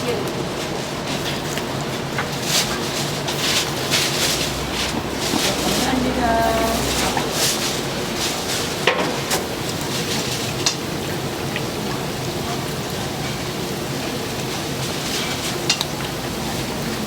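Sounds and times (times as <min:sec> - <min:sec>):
hot oil sizzling: 0:00.0 - 0:17.0.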